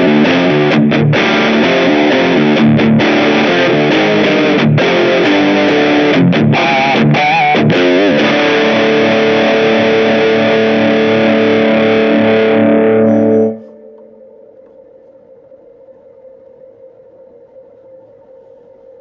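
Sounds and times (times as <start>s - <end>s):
distorted electric guitar: 0.0s - 18.2s
faint steady tone: 12.6s - 19.0s.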